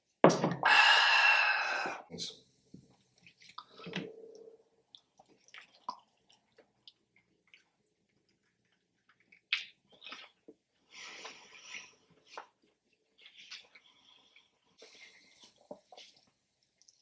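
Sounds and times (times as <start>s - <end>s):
person chewing crunchy food: 3.1s - 16.3s.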